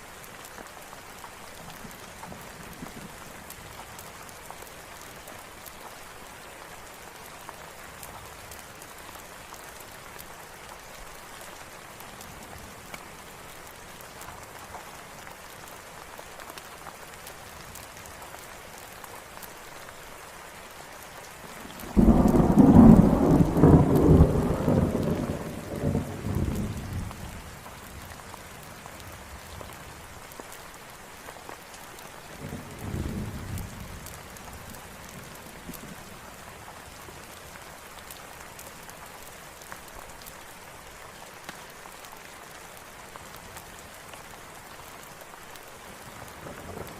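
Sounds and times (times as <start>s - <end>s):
steady rain falling: 0.0s - 46.9s
thunder rumbling: 21.8s - 27.2s.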